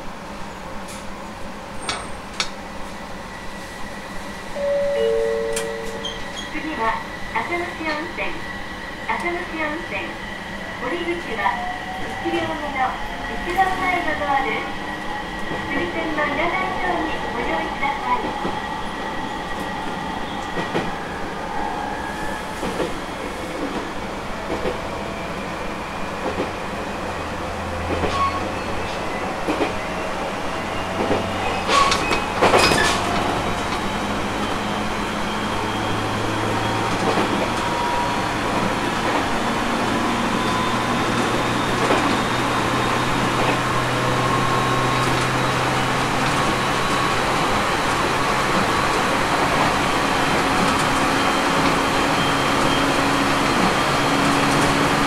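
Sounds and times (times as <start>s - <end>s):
rail-joint clicks: 1.8s - 2.6s, 5.2s - 6.7s, 31.0s - 33.9s.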